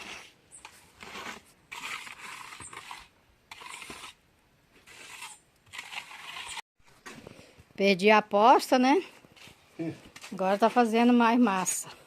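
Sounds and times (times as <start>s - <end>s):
tool scraping through mortar: 0.0s - 6.6s, 9.0s - 12.0s.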